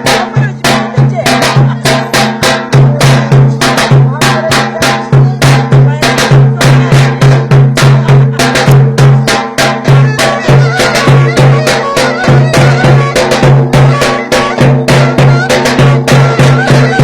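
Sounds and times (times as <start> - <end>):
driving drumbeat: 0.0 - 17.0
sustained folk melody: 9.5 - 17.0.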